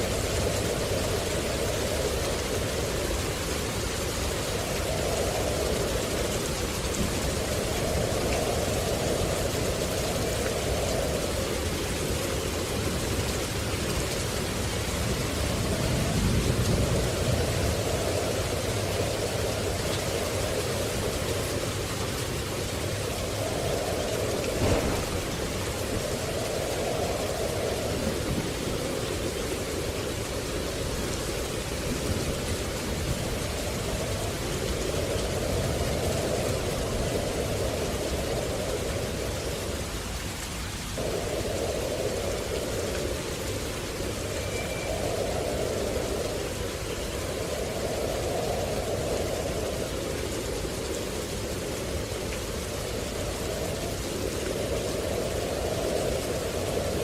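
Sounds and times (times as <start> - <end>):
steady rain falling: 0.0 - 57.0
steady rushing noise: 0.0 - 57.0
low rumble: 23.4 - 28.6.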